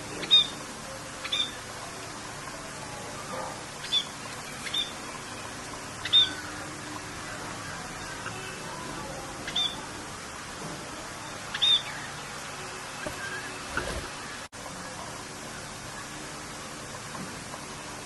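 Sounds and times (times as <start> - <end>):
rain hissing: 0.0 - 18.0
bird chirping: 0.1 - 0.6, 1.2 - 1.6, 3.8 - 6.6, 9.4 - 9.9, 11.4 - 12.4.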